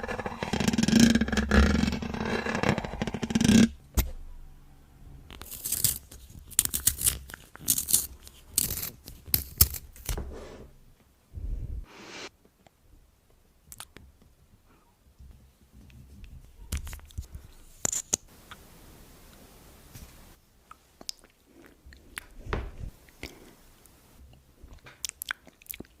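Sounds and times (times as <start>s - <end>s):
makeup scraping and rubbing: 5.4s - 10.7s.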